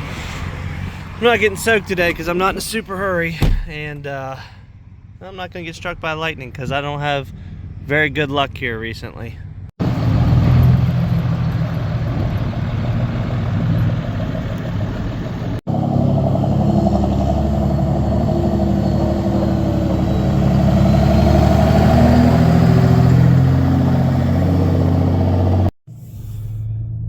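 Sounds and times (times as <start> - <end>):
truck engine running: 9.8 - 25.7.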